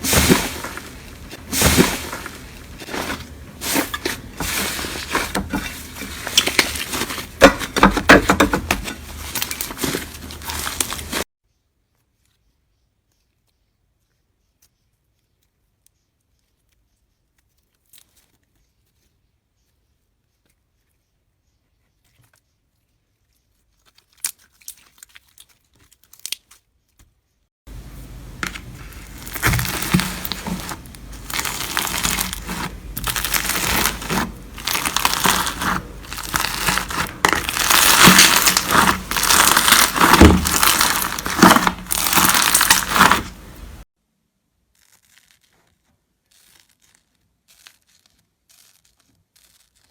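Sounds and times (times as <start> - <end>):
slime crackling and popping: 0.0 - 11.3, 28.0 - 43.8, 44.8 - 45.7, 46.3 - 49.9.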